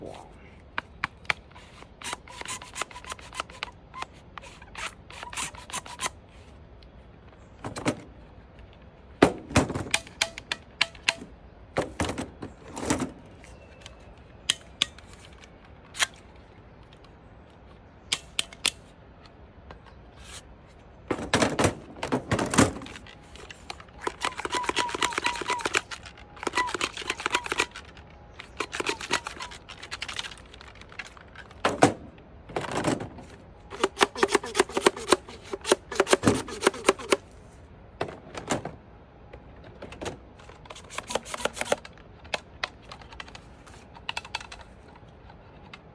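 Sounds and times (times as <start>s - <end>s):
plastic toy blaster clicking: 0.8s - 6.2s, 9.9s - 11.3s, 18.1s - 18.9s, 22.7s - 31.6s, 33.7s - 37.3s, 40.4s - 44.7s.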